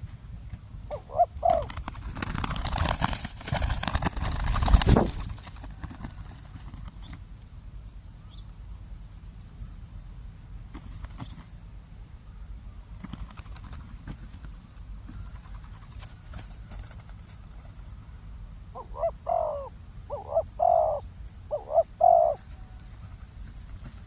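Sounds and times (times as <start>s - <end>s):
dove cooing: 0.9s - 1.9s, 18.7s - 22.8s.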